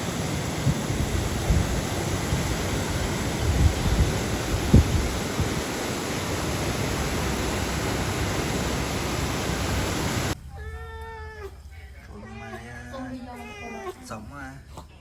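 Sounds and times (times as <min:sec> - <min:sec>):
fast-flowing river rushing: 0:00.0 - 0:10.4.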